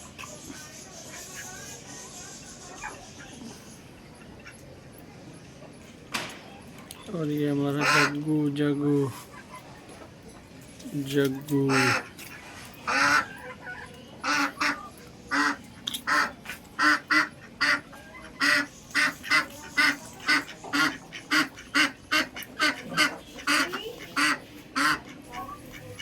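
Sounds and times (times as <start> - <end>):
ducks quacking: 7.7 - 8.3, 11.4 - 26.0.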